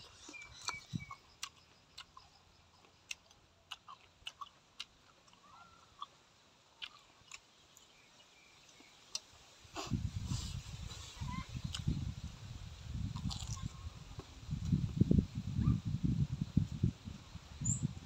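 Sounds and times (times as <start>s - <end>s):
man chewing: 0.0s - 12.0s, 13.0s - 13.7s.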